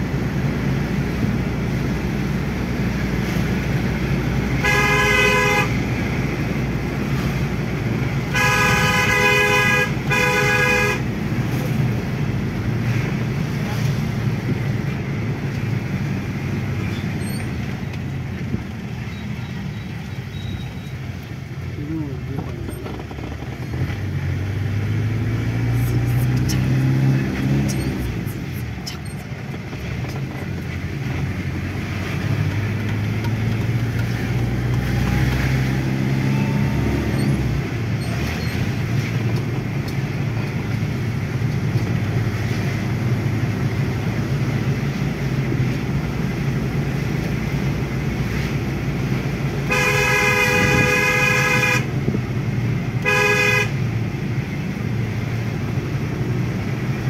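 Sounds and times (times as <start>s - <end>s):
diesel engine running: 0.0s - 57.0s
vehicle horn blasts: 4.6s - 5.8s, 8.3s - 11.1s, 49.7s - 51.9s, 53.0s - 53.8s.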